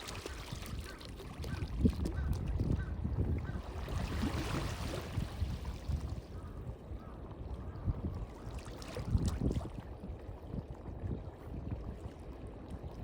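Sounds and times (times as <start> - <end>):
small waves lapping: 0.0 - 2.2, 3.6 - 6.2
wind buffeting microphone: 0.0 - 13.0.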